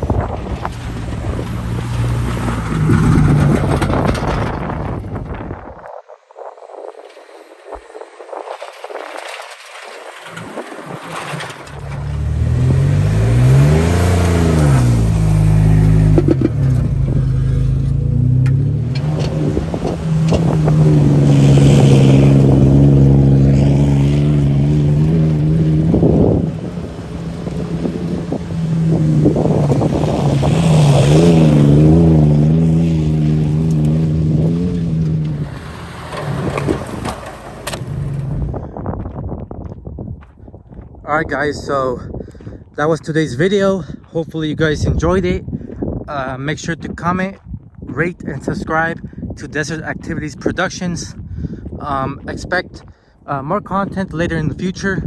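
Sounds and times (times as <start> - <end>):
truck engine revving: 0.0 - 5.6, 9.7 - 38.8.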